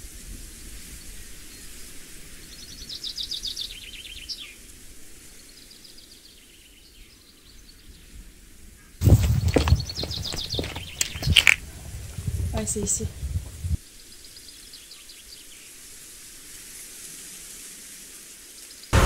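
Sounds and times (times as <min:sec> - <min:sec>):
outdoor background hiss: 0:00.0 - 0:19.0
songbird trilling: 0:09.0 - 0:13.8.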